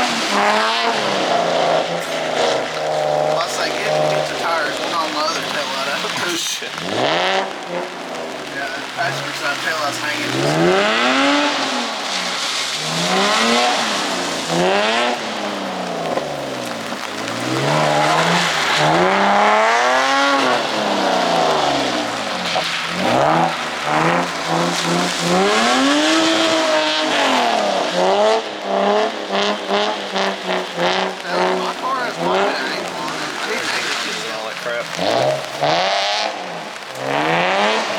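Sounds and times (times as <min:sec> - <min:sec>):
car engine revving: 0:00.0 - 0:37.9
steady hiss: 0:08.4 - 0:14.6.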